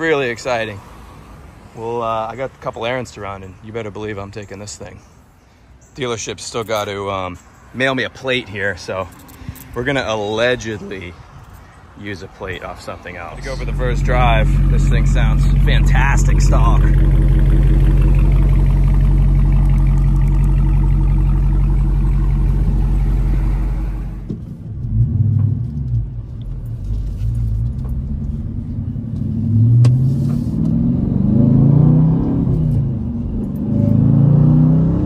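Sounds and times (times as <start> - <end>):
car engine idling and accelerating: 8.6 - 35.0.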